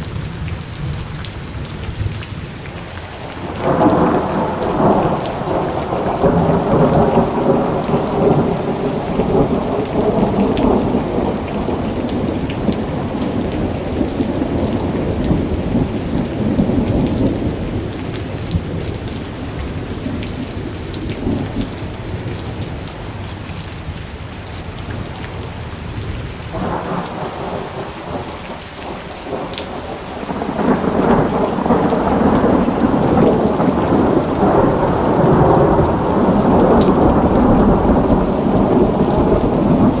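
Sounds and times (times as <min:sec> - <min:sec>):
steady rain: 0:00.0 - 0:40.0
rolling thunder: 0:03.3 - 0:22.5, 0:26.0 - 0:40.0.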